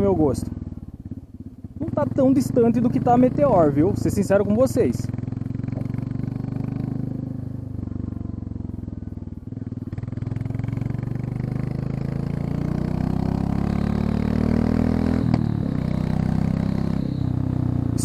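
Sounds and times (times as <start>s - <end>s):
motorcycle exhaust accelerating: 0.0s - 18.0s.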